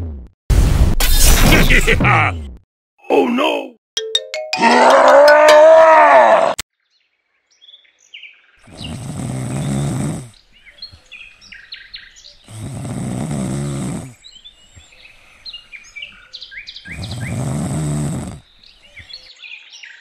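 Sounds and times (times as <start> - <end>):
small birds chirping: 6.9 - 20.0
person snoring: 8.7 - 10.4, 12.5 - 14.2, 16.9 - 18.4.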